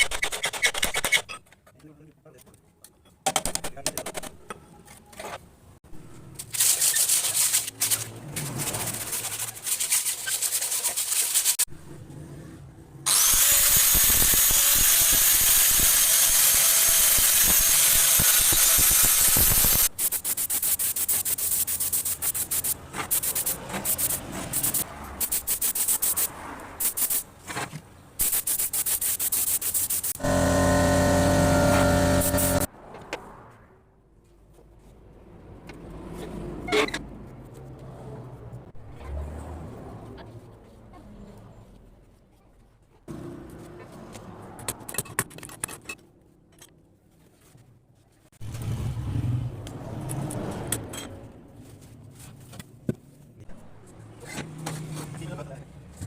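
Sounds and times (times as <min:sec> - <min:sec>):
steady hum: 0:30.2 - 0:32.7.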